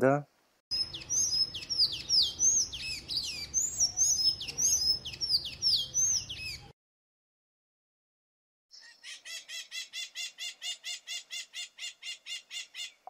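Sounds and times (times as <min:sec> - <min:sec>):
birds singing high chirps: 0:00.7 - 0:06.7, 0:08.7 - 0:13.0.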